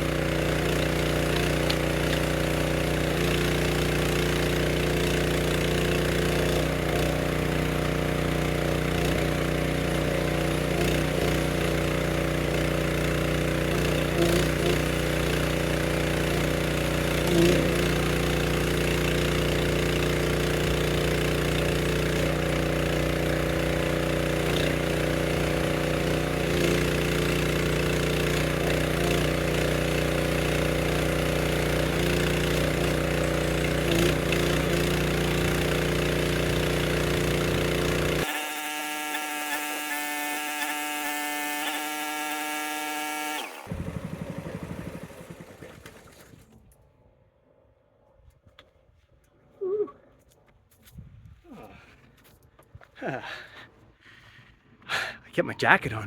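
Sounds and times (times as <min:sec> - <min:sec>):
log splitter running: 0:00.0 - 0:46.6.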